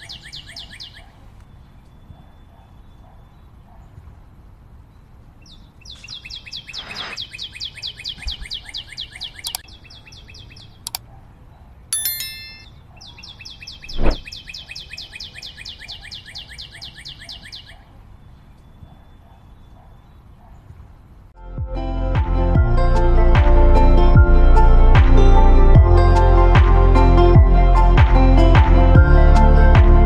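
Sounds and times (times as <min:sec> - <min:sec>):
sharp clicks: 0:09.4 - 0:09.6, 0:10.8 - 0:11.0
bell-like chime: 0:12.0 - 0:12.7
loud thump: 0:14.0 - 0:14.2.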